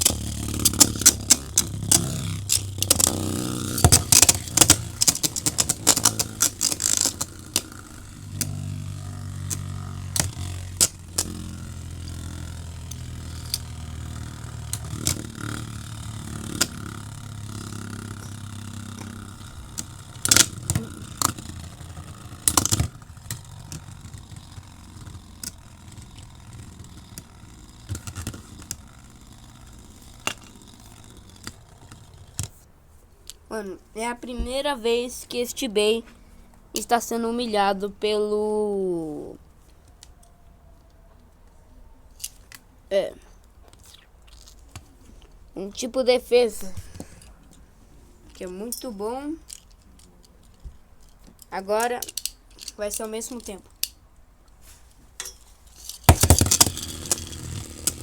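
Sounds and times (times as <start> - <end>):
spinning tops clacking: 0.0 - 32.5, 55.8 - 58.0
spinning tops whirring: 0.0 - 32.7, 55.7 - 58.0.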